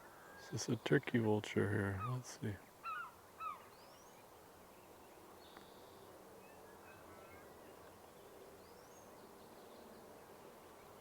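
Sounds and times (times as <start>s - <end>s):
distant bird chirps: 0.0s - 4.3s.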